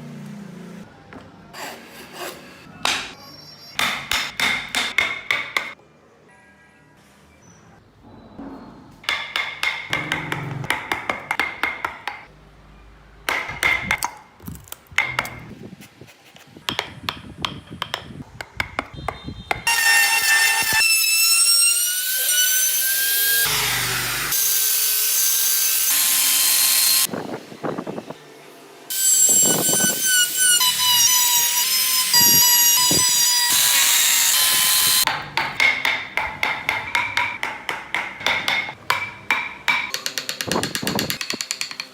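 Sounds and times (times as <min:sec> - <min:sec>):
power carving tool whining: 0:29.2 - 0:35.1.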